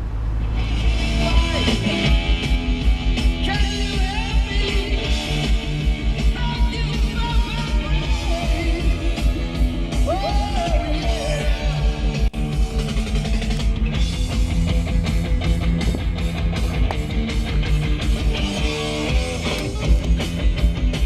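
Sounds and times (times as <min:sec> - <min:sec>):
rock music with electric guitar: 0:00.2 - 0:21.0.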